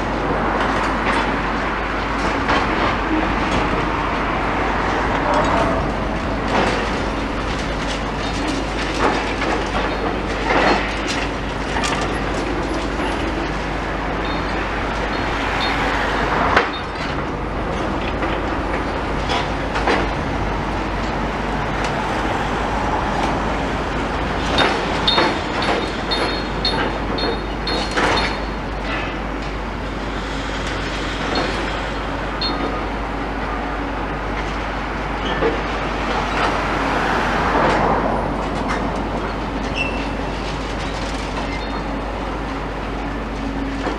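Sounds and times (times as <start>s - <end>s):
knocks and clatter: 0.0s - 29.6s
demolition machinery working: 0.0s - 43.9s
traffic rumble: 0.0s - 43.9s.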